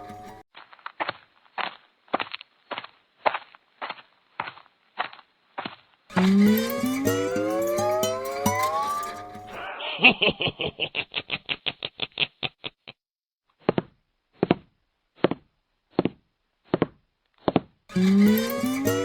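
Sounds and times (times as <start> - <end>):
music snatch: 6.1 - 9.7, 17.9 - 19.0.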